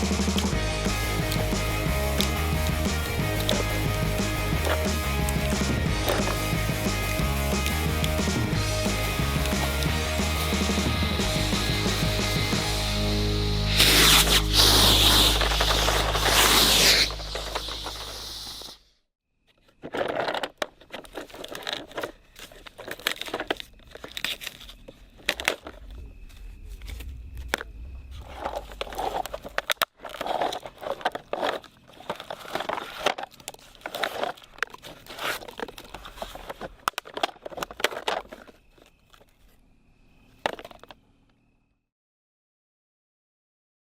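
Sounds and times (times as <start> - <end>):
crunching and crinkling handling: 19.5 - 39.5.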